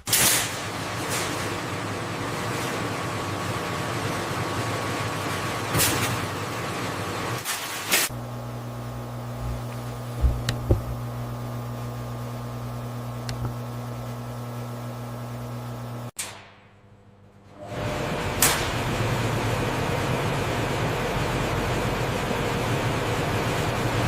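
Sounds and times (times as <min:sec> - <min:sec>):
noisy machine whir: 0:00.6 - 0:16.1, 0:17.4 - 0:24.0
low electrical hum: 0:08.1 - 0:16.1
dull knocks: 0:09.4 - 0:11.1.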